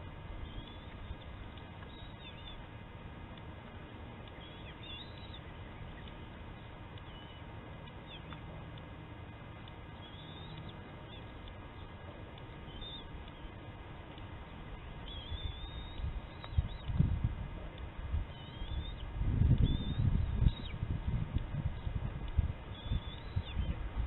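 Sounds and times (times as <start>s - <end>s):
outdoor background noise: 0.0s - 24.0s
faint bird chirps: 0.4s - 2.7s, 4.2s - 8.4s, 9.9s - 13.6s, 14.7s - 17.0s, 18.2s - 20.8s, 22.6s - 23.9s.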